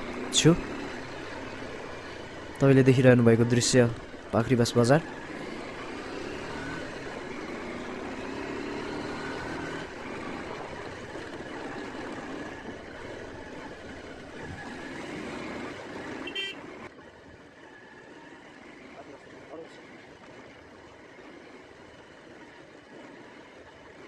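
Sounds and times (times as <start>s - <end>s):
motorcycle engine running: 0.0s - 24.0s
road noise: 0.0s - 24.0s
horn toot: 16.2s - 16.6s.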